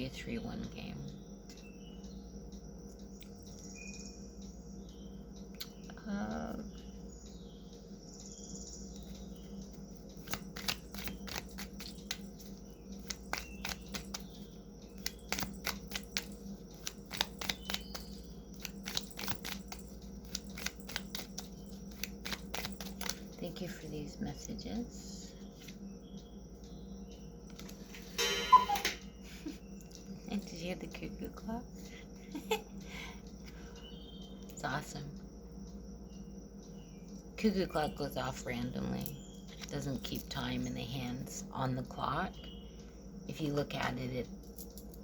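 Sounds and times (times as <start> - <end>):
low room hum: 0.0 - 45.0
cards being shuffled: 10.2 - 14.4, 15.0 - 23.4.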